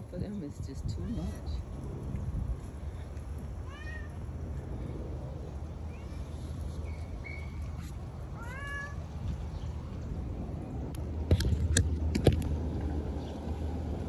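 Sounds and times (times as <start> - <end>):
cat meowing: 3.6 - 4.2, 8.4 - 9.0.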